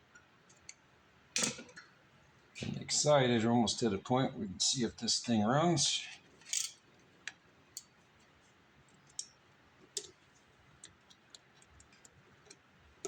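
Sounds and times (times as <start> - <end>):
small parts and tools clicking: 6.4 - 7.9.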